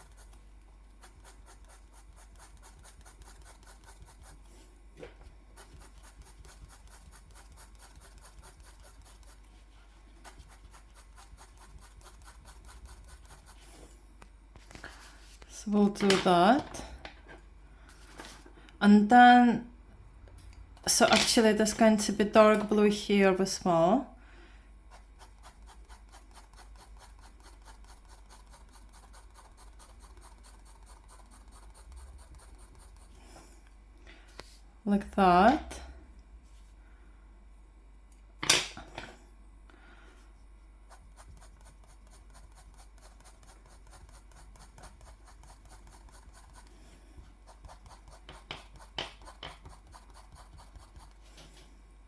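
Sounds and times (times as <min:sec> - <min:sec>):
colouring tool scratching on paper: 0:00.0 - 0:00.4, 0:01.0 - 0:04.7, 0:05.5 - 0:14.0, 0:24.9 - 0:33.4, 0:40.8 - 0:51.3
low steady hum: 0:00.0 - 0:52.0.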